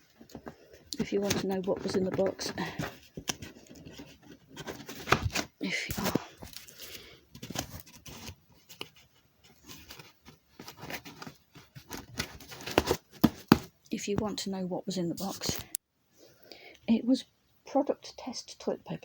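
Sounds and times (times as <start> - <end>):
scraping crinkling sound: 0.0 - 13.7
cardboard box being handled: 0.0 - 13.8.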